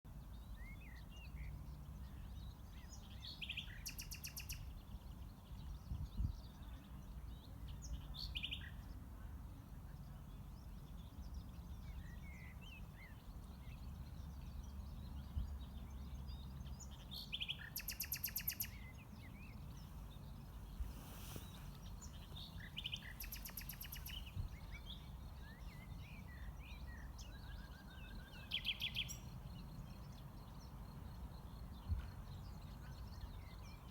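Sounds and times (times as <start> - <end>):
birds chirping and singing: 17.0 - 31.1.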